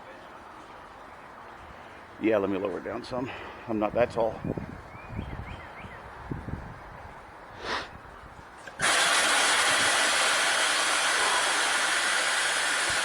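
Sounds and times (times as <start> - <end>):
steady hiss of vehicle lift: 8.7 - 13.0.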